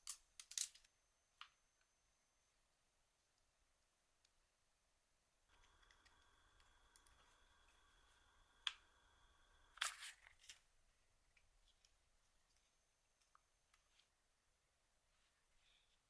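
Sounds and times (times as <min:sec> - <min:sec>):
faint high electronic whine: 0:00.6 - 0:03.4, 0:05.4 - 0:13.2.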